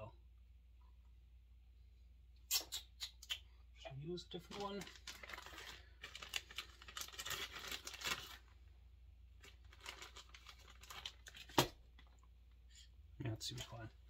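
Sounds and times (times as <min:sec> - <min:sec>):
rustling and crinkling of small parts: 0:04.3 - 0:08.6, 0:09.4 - 0:12.7, 0:13.4 - 0:14.0.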